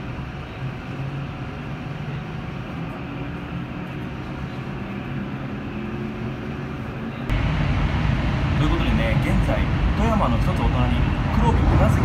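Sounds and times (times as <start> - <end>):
train cabin rumble and hum: 6.7 - 12.0.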